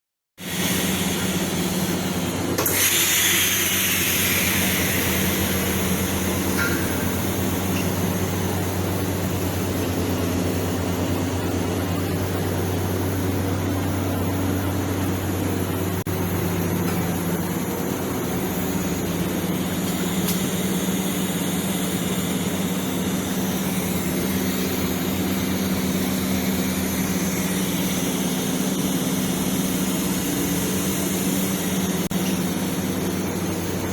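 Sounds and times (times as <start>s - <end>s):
bright welding hiss: 0.4s - 9.7s
welding arc buzzing hum: 0.4s - 33.9s.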